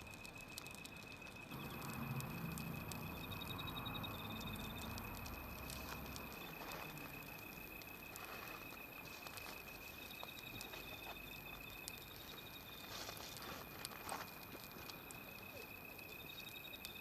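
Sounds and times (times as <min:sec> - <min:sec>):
faint steady high tone: 0:00.0 - 0:17.0
wood fire crackling: 0:00.0 - 0:17.0.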